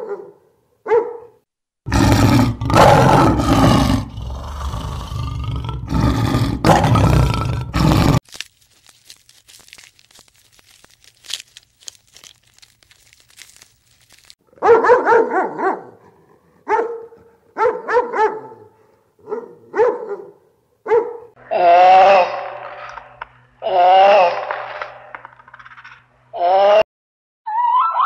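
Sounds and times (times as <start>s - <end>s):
dog barking and yelping: 0.0s - 1.4s, 14.6s - 21.4s.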